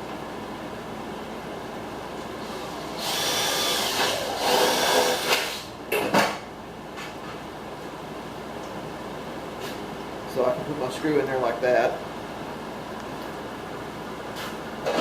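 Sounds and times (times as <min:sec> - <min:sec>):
power drill boring: 0:03.0 - 0:05.6.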